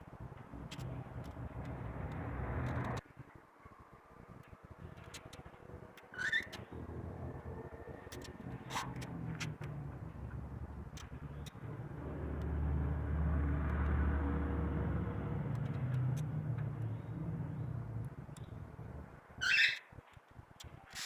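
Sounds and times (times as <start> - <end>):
passing motor vehicle rumble: 0.1 - 3.4, 6.6 - 19.5.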